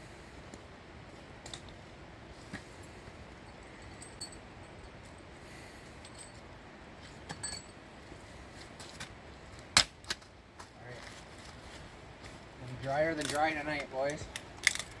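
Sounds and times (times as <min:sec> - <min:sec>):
sharp loud wood crack: 0:09.7 - 0:10.2.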